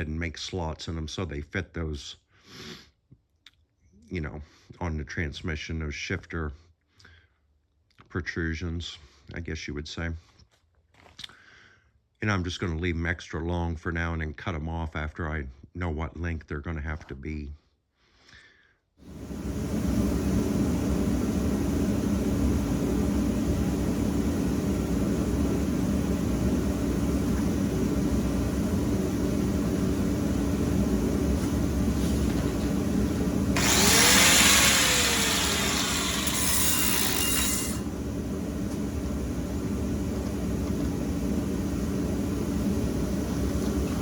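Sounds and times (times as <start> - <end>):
power tool cutting steel: 33.6 - 37.9.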